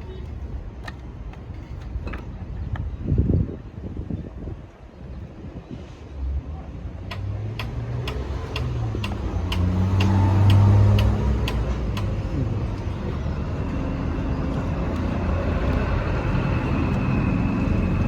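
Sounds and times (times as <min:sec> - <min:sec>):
regular ticking: 0:07.6 - 0:17.1.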